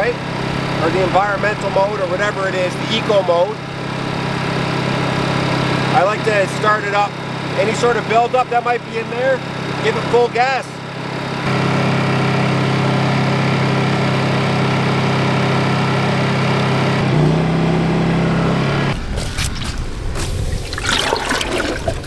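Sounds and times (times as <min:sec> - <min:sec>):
generator engine running: 0:00.0 - 0:22.0
water splashing and pouring: 0:19.0 - 0:22.0.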